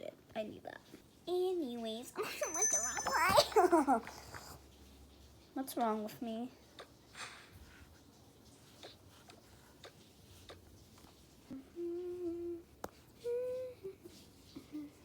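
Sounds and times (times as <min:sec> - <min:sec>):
girl humming: 0:11.6 - 0:15.0.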